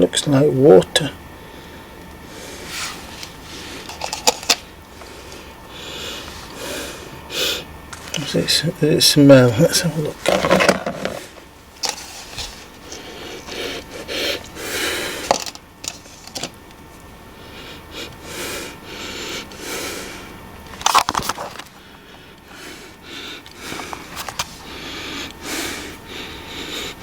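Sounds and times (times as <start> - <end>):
person sniffing: 2.3 - 3.9, 22.5 - 27.0.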